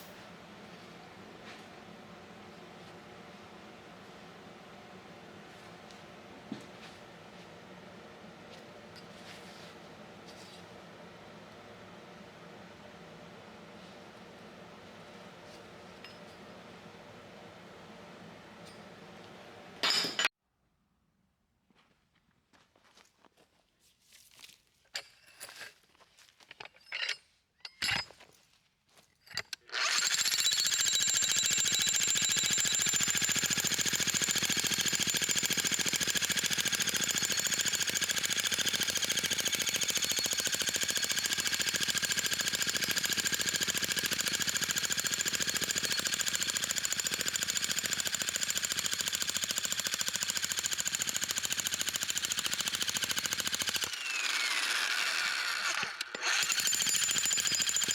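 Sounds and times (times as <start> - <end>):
jackhammer hammering: 29.8 - 54.9, 56.2 - 57.9.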